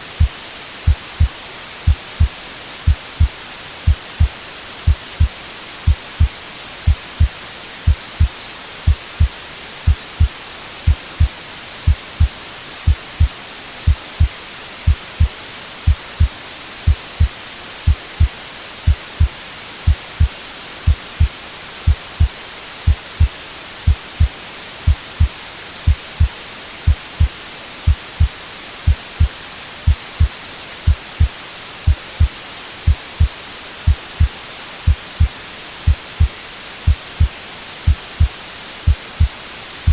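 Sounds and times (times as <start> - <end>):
white noise hiss: 0.0 - 39.9
heartbeat thumps: 1.9 - 3.3, 3.9 - 5.3, 5.9 - 7.3, 7.9 - 12.3, 12.9 - 13.3, 13.9 - 14.3, 14.9 - 15.3, 15.9 - 18.3, 18.9 - 20.3, 20.9 - 21.3, 21.9 - 22.3, 22.9 - 23.3, 23.9 - 24.3, 24.9 - 25.3, 25.9 - 27.3, 27.9 - 28.3, 28.9 - 31.3, 31.9 - 32.3, 32.9 - 36.3, 36.9 - 39.9.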